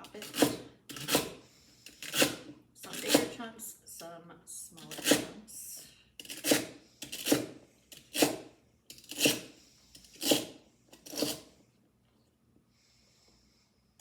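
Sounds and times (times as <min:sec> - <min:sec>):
knife chopping on cutting board: 0:00.2 - 0:01.4, 0:06.2 - 0:09.5.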